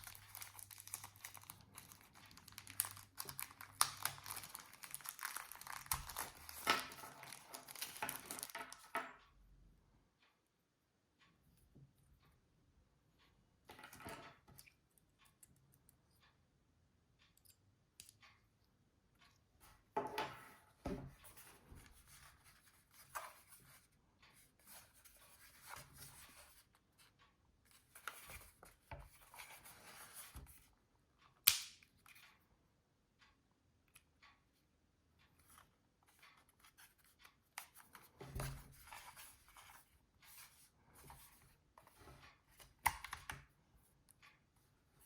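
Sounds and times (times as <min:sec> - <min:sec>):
handling rustling and clicks: 0:00.0 - 0:09.0.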